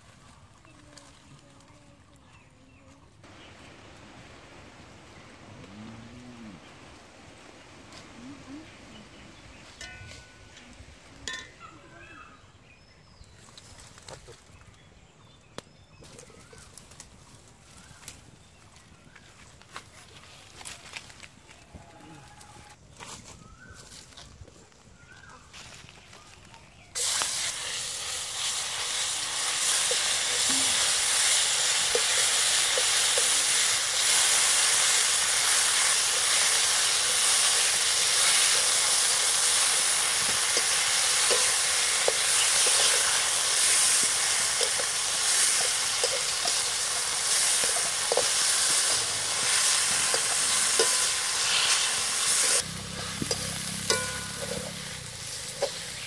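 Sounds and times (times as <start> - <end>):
spice paste sizzling in hot oil: 27.0 - 56.0.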